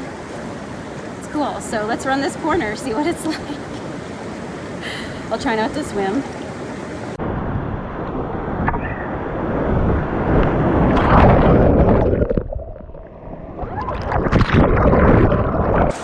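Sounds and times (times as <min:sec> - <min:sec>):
whitewater rushing and splashing: 0:00.0 - 0:07.3, 0:15.8 - 0:16.0
wind buffeting microphone: 0:00.0 - 0:16.0.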